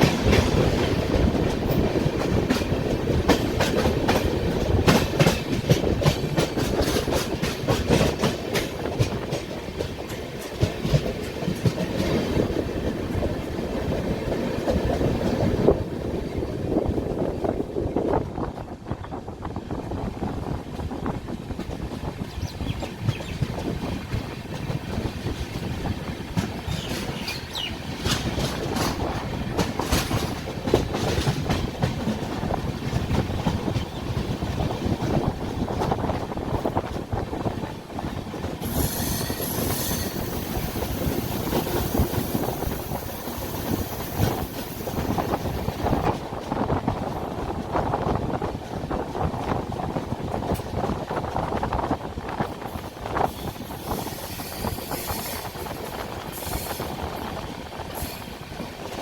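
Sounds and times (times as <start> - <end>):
train wheels rumbling on rails: 0.0 - 59.0
high wheel squeal: 38.6 - 41.8.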